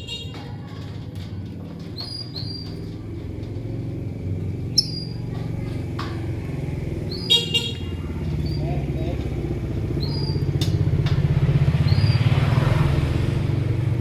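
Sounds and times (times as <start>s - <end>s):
lovebirds chirping: 4.7s - 5.3s, 9.8s - 10.6s.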